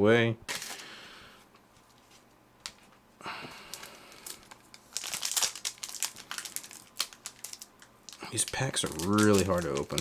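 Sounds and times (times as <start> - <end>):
card pack wrapper crinkling: 3.7 - 10.0.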